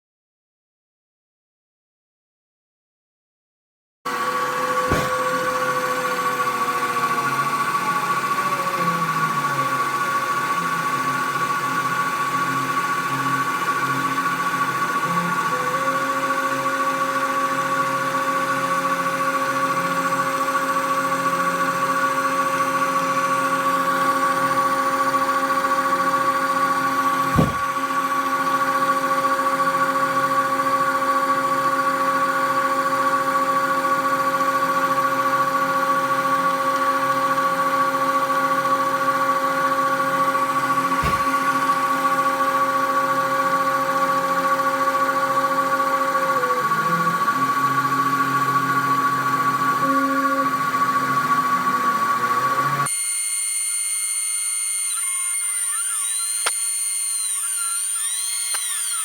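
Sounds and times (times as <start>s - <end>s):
cnc mill motors whining: 4.1s - 59.0s
brief knock: 4.9s - 5.4s, 27.3s - 27.7s, 41.0s - 41.4s.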